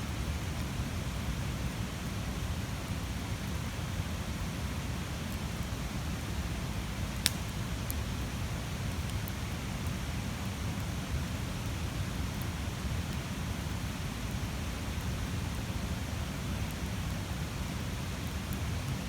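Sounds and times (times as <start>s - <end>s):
campfire flames roaring: 0.1s - 19.0s
wood crackling pops: 7.2s - 7.6s.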